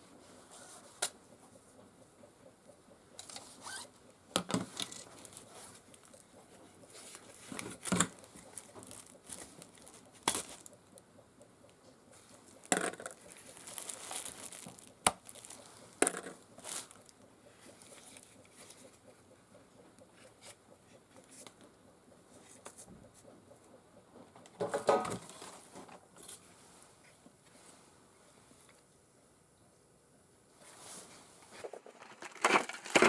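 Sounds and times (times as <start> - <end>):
rustling: 4.6 - 10.7, 12.2 - 19.0, 30.6 - 33.0
tools clicking and knocking: 12.6 - 13.4.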